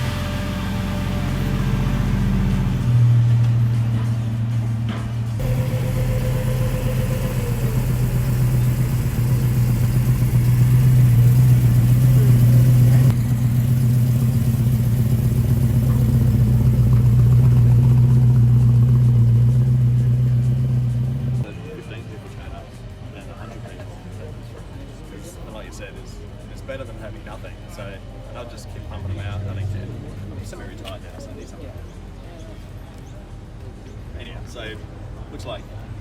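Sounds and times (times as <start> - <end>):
car engine idling: 0.0 - 21.5.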